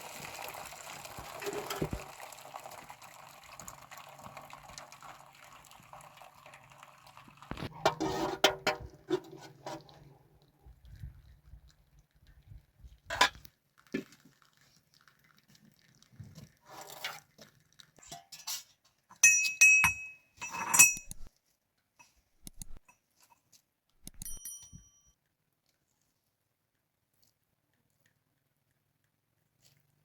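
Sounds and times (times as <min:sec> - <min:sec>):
dishes clinking: 0:19.2 - 0:21.3, 0:24.1 - 0:25.0.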